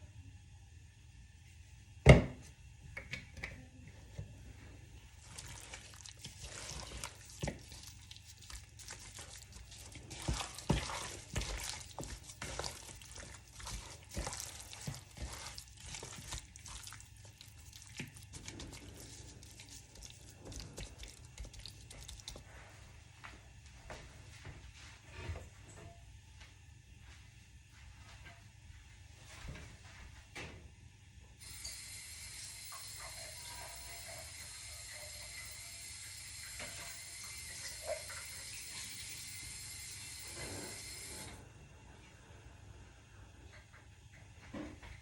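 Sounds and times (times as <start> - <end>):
water running into a sink: 5.2 - 22.4, 31.4 - 41.4.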